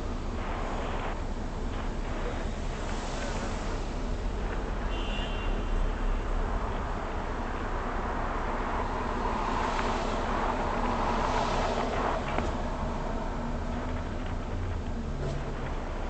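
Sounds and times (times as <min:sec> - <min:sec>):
road traffic noise: 0:00.0 - 0:16.0
vehicle passing: 0:07.9 - 0:14.4.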